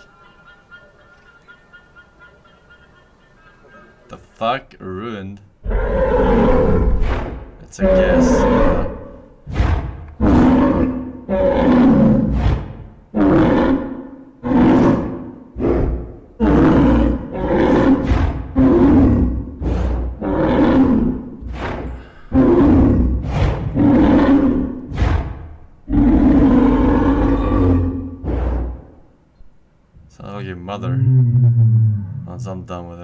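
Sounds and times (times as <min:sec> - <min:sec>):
loud pitched roaring calls: 0:05.6 - 0:29.1, 0:30.8 - 0:32.4.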